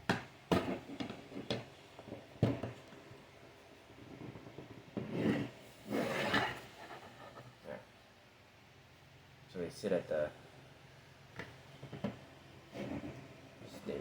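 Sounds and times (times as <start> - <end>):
soft rubbing and handling: 0.6 - 7.8, 11.4 - 14.0.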